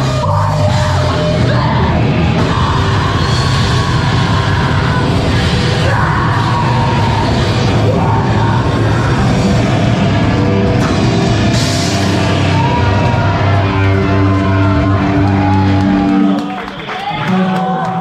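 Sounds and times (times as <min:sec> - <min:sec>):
person singing: 0:00.0 - 0:10.0
distorted electric guitar: 0:00.0 - 0:18.0
rock drums: 0:00.0 - 0:18.0.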